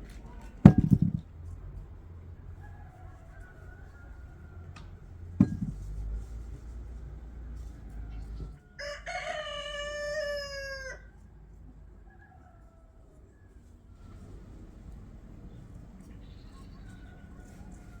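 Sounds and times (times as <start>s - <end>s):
rooster crowing: 2.5s - 5.0s, 8.1s - 11.1s
sharp knock: 5.4s - 5.9s.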